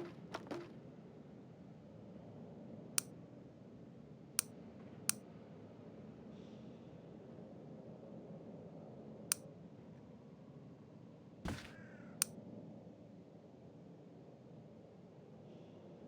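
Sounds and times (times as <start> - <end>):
dull thump: 0.0 - 0.8, 11.5 - 11.8.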